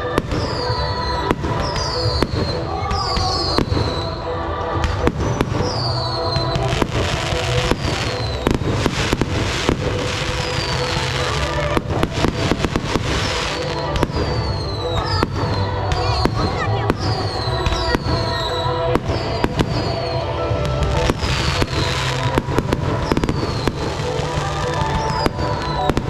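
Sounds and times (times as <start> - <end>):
fireworks bangs and crackling: 0.0 - 26.0
fireworks whistles: 0.0 - 26.0.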